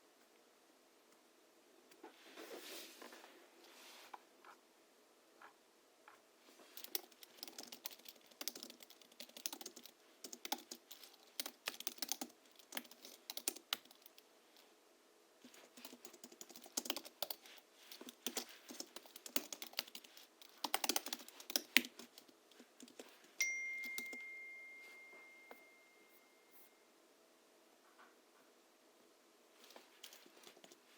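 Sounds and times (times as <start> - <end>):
soft clacky keyboard typing: 5.4 - 14.3, 15.4 - 24.5, 29.6 - 30.9
clear ding: 23.4 - 26.8.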